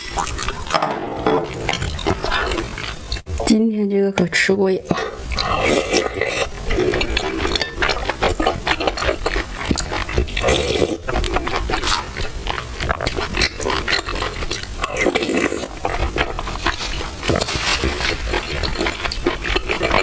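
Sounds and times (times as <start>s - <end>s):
chewing with mouth smacks: 0.0s - 0.8s, 1.4s - 3.4s, 4.9s - 20.0s
slurping tea: 5.4s - 12.2s, 13.2s - 20.0s.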